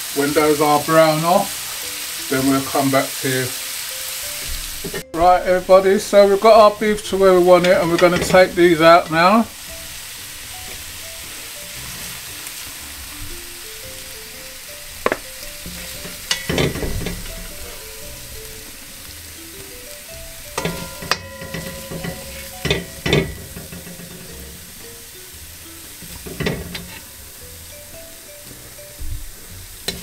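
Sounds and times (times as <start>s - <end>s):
light jazz music: 0.0s - 30.0s
meat sizzling in a pot: 0.0s - 30.0s
metal spoon scraping a pot: 15.6s - 17.7s, 20.6s - 24.8s, 26.0s - 27.2s.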